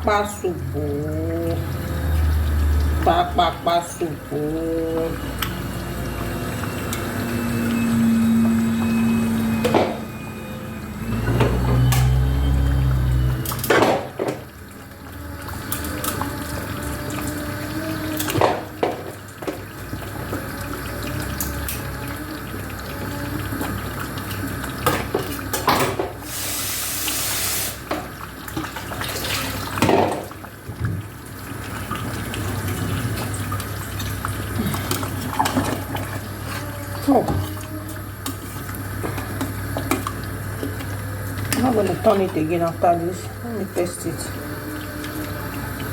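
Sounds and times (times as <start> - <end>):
tap water splashing in sink: 0.9 - 10.2, 12.8 - 45.9.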